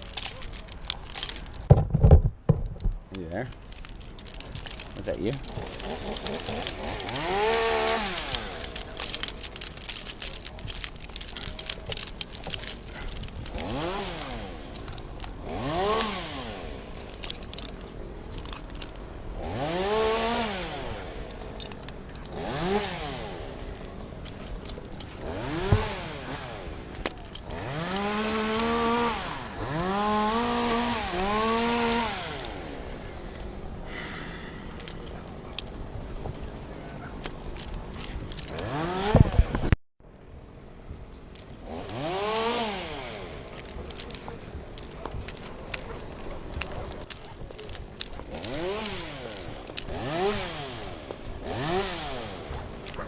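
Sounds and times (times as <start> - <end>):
clicks and metal rattles: 0.0 - 19.2, 21.1 - 26.2, 26.9 - 29.1, 34.7 - 39.8, 40.6 - 53.0
chainsaw revving: 4.6 - 10.4, 11.4 - 14.8, 15.4 - 17.0, 19.4 - 21.3, 22.3 - 23.8, 25.1 - 26.8, 27.5 - 32.9, 38.6 - 39.2, 41.6 - 44.4, 45.3 - 53.0.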